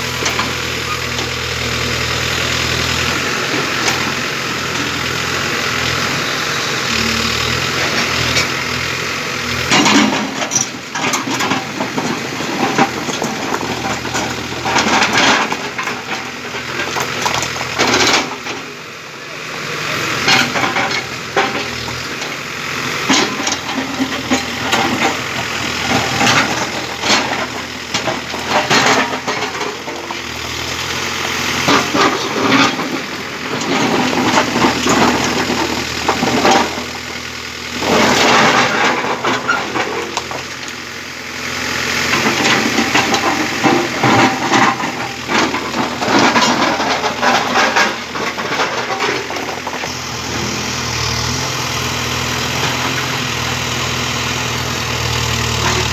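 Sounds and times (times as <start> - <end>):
diesel engine running: 0.0 - 55.9
knocks and clattering: 9.6 - 18.6, 31.6 - 37.1, 42.1 - 50.4.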